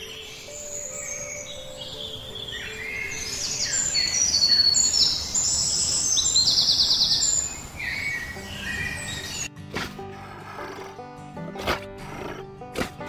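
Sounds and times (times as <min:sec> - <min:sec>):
small birds chirping and trilling: 0:00.0 - 0:09.6.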